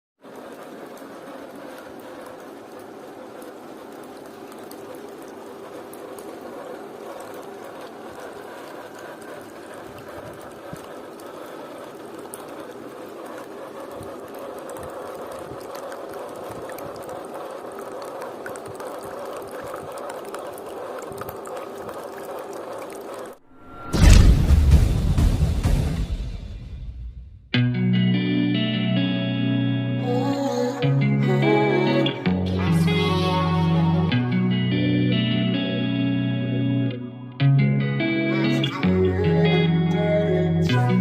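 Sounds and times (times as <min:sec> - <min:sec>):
water splashing and bubbling: 0:00.2 - 0:25.2.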